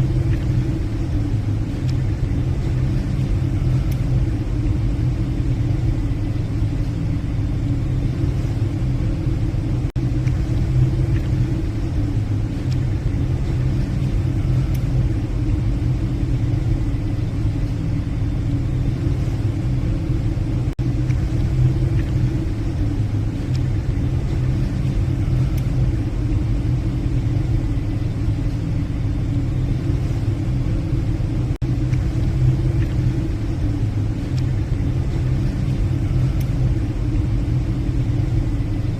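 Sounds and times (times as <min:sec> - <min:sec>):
ship engines droning: 0:00.0 - 0:38.9.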